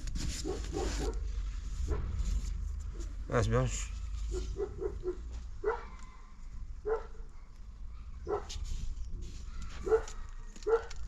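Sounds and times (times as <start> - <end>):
dog barking: 0.4 - 1.2, 4.3 - 6.0, 6.8 - 8.5, 9.8 - 11.0.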